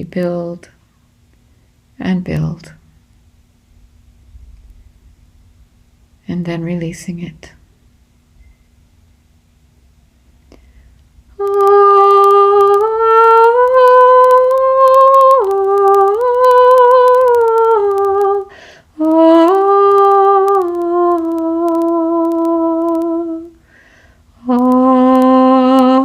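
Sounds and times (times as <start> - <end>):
woman breathing: 10.5 - 11.0, 18.5 - 19.0, 23.6 - 24.3
woman singing sustained notes: 11.3 - 23.6, 24.4 - 26.0.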